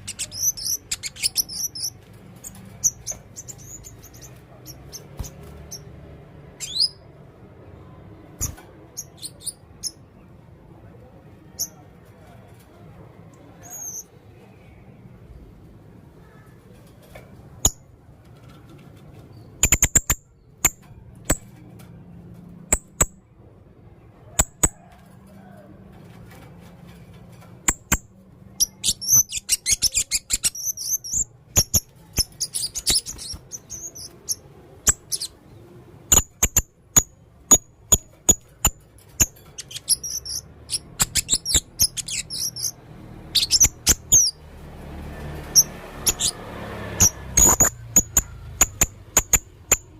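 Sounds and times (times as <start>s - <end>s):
parrot chirping: 0.0s - 7.1s, 8.4s - 10.1s, 28.6s - 35.4s, 36.1s - 44.4s, 45.4s - 49.9s
parrot twittering: 39.2s - 44.4s, 45.5s - 46.4s, 47.0s - 49.8s.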